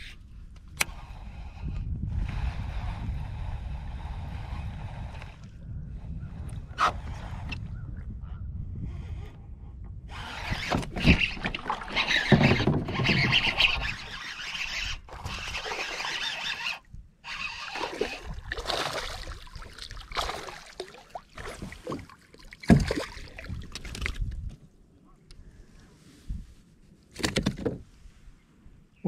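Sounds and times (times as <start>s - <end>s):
water splashing: 17.4s - 24.2s.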